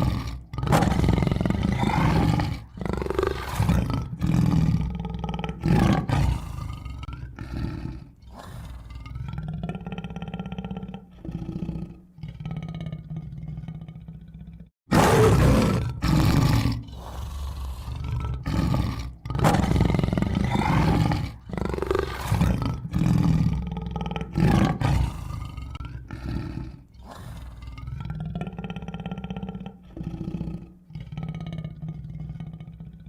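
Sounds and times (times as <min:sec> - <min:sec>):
tiger roaring and growling: 0:00.0 - 0:33.0.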